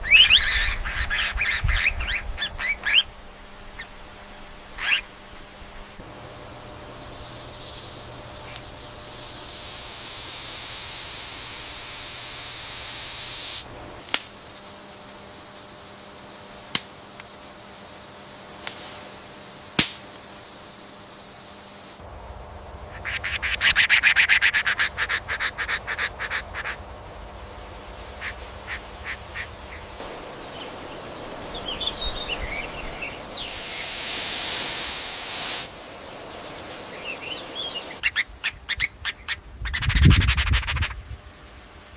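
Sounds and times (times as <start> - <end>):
hissing noise bursts: 6.0 - 22.0, 30.0 - 38.0.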